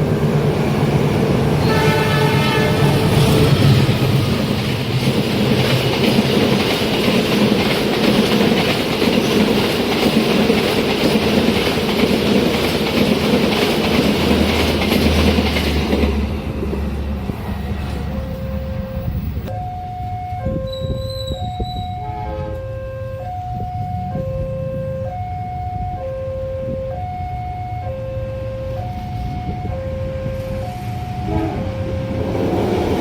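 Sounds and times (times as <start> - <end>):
train wheels clattering on rails: 0.0 - 18.2
alternating two-tone signal: 18.1 - 32.8.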